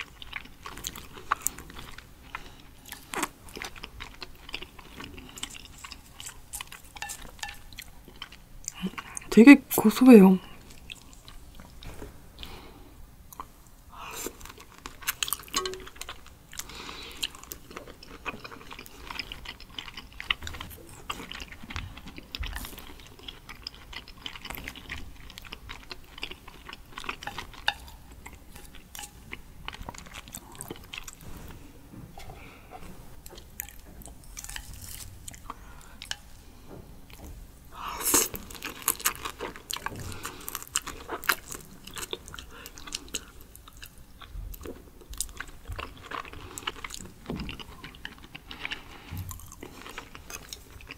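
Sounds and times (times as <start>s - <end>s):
person chewing with mouth clicks: 13.3s - 36.4s, 37.1s - 50.9s.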